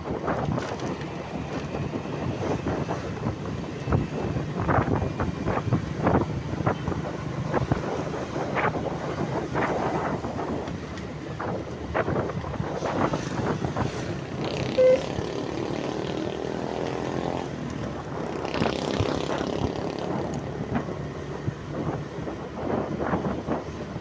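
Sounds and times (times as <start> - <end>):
vehicle noise: 0.0 - 24.0
wind buffeting microphone: 0.0 - 24.0
pitched engine sound: 14.4 - 16.6
loud steady tone: 14.7 - 15.3.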